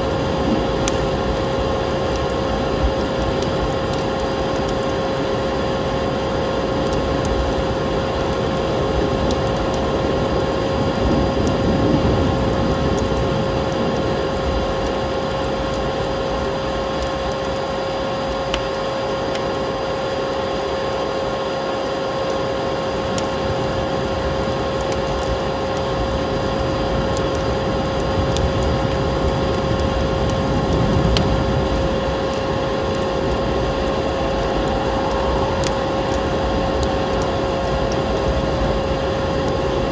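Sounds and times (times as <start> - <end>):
wood fire crackling: 0.0 - 39.9
vacuum cleaner motor whining: 32.4 - 39.9.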